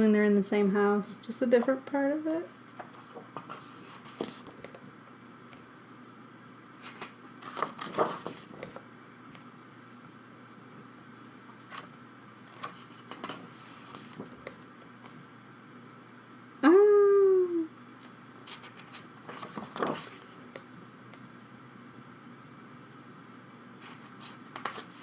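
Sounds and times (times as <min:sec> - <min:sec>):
book pages rustling: 0:02.7 - 0:04.9, 0:06.8 - 0:09.5, 0:11.3 - 0:15.3, 0:18.5 - 0:21.3, 0:23.8 - 0:25.0.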